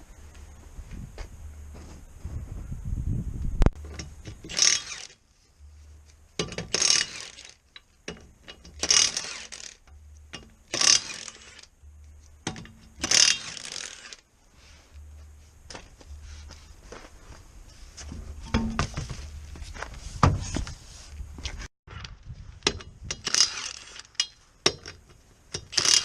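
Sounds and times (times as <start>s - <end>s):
ratchet clicking: 3.9s - 5.2s, 6.4s - 11.7s, 12.5s - 14.2s, 22.7s - 26.0s.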